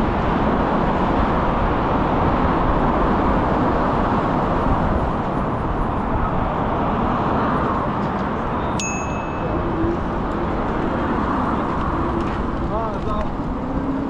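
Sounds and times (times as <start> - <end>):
wind and road noise: 0.0 - 14.0
short metallic ding: 8.8 - 9.6.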